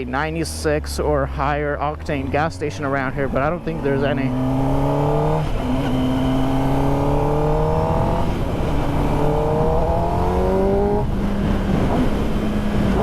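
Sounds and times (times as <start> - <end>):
motorcycle engine accelerating through gears: 2.0 - 13.0
wind noise: 3.0 - 13.0.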